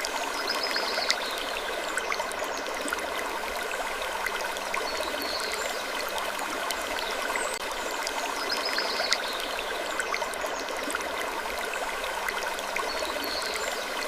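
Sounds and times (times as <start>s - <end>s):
small ticks and clicks: 0.0s - 1.4s, 8.8s - 9.3s.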